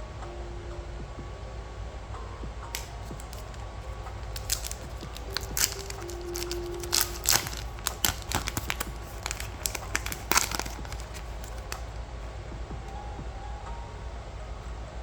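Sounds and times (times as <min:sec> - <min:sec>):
card pack wrapper crinkling: 0:02.8 - 0:12.0.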